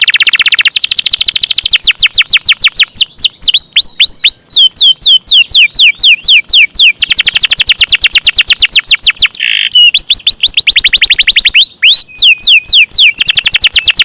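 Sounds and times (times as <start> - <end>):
canary singing: 0.0 - 14.0.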